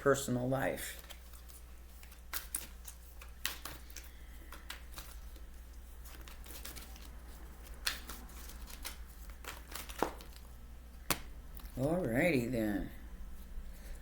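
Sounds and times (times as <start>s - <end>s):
cards flicking and slapping: 1.0s - 11.8s.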